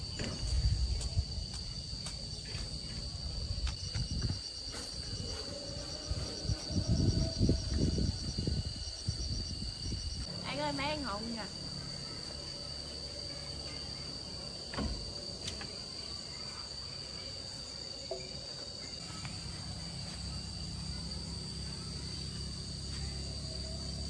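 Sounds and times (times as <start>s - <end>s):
insects droning: 0.0s - 24.0s
thump: 0.1s - 0.8s, 14.7s - 15.7s.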